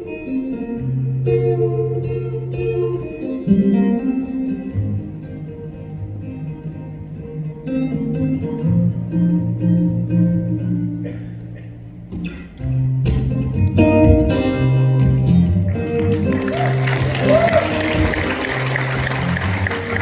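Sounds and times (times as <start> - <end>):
electric guitar lead: 0.0 - 20.0
live band playing: 12.5 - 20.0.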